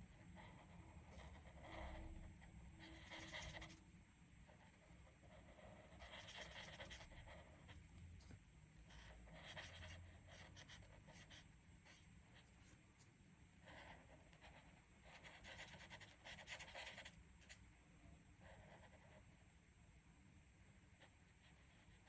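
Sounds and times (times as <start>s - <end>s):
colouring tool scratching paper: 0.4s - 3.8s, 5.2s - 7.8s, 8.9s - 12.5s, 13.7s - 17.1s.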